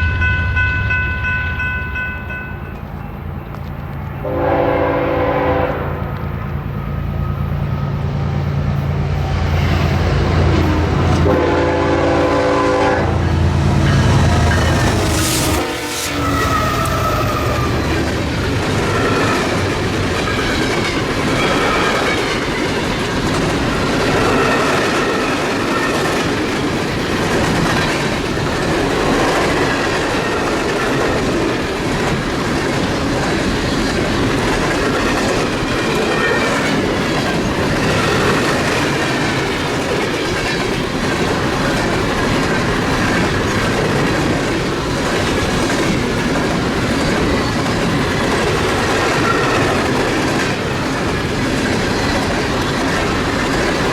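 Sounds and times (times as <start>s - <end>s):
train wheels clattering on rails: 8.8s - 53.9s
high wheel squeal: 13.8s - 18.0s.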